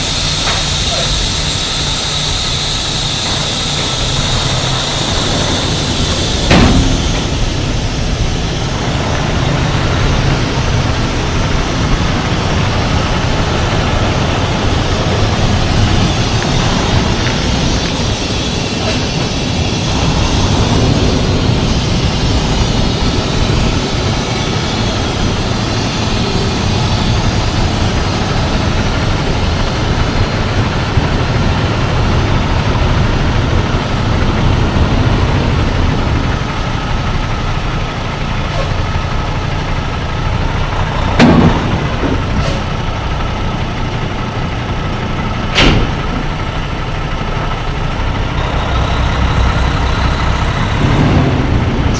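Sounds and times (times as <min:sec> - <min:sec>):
diesel truck engine running: 0:00.0 - 0:51.9
sharp knocks: 0:05.5 - 0:09.0.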